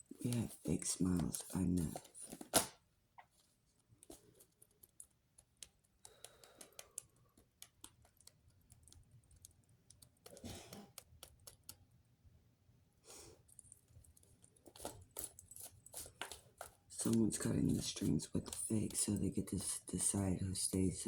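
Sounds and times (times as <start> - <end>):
soft rustling: 0.0 - 5.7
light clicks and taps: 0.1 - 11.8, 13.5 - 21.0.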